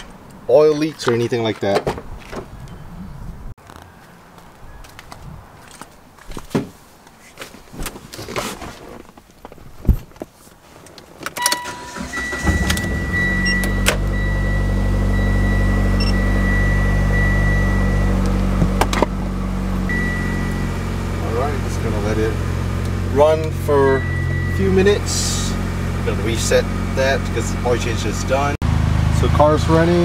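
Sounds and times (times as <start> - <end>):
high electronic tone: 11.4 - 21.8, 23.2 - 25.8
car engine starting and idling: 11.4 - 30.0.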